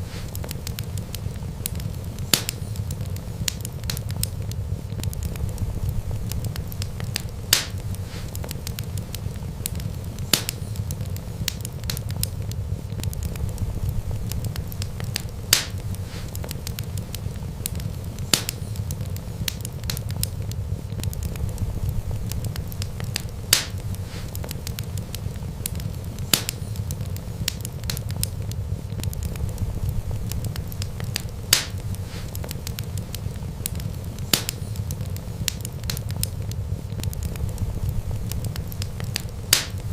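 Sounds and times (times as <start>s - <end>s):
fire popping: 0.0s - 39.9s
wood fire crackling: 0.0s - 39.9s
low rumble: 4.4s - 8.1s, 12.4s - 16.0s, 20.4s - 23.9s, 28.4s - 32.0s, 36.4s - 39.9s.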